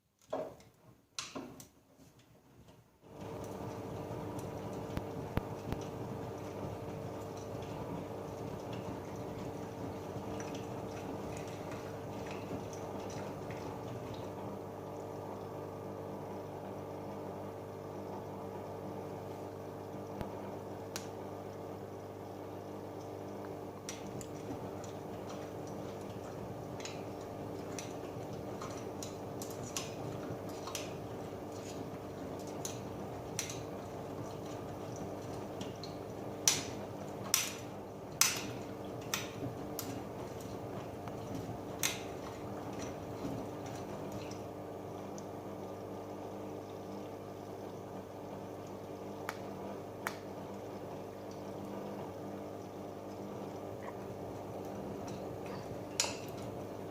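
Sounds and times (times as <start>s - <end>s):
washing machine humming: 0.0s - 56.9s.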